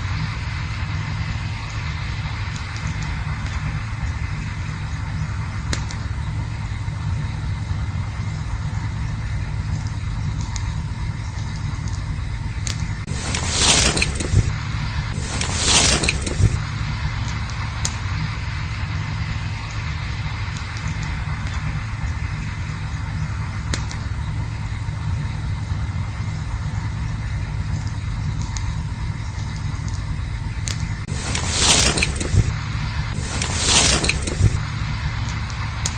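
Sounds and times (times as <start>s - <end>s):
campfire rumbling: 0.0s - 35.9s
fire crackling pops: 0.0s - 35.9s
loud rushing hiss: 13.0s - 23.6s, 31.0s - 35.9s.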